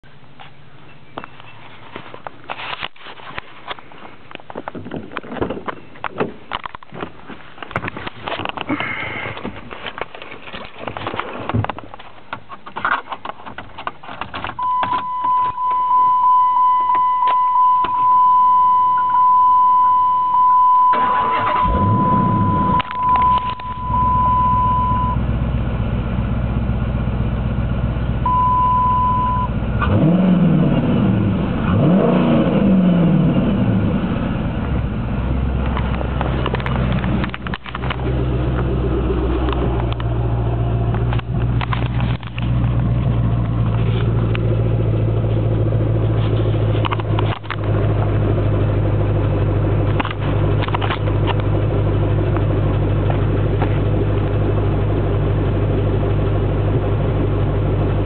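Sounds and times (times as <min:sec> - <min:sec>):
car engine idling: 0:00.0 - 0:30.2, 0:33.0 - 0:58.0
car engine cranking and starting: 0:01.0 - 0:58.0
clicks and rattles: 0:01.2 - 0:15.6, 0:35.6 - 0:38.8, 0:40.8 - 0:44.6, 0:46.0 - 0:48.2, 0:49.8 - 0:51.6
engine revving: 0:20.9 - 0:24.0, 0:29.2 - 0:49.0.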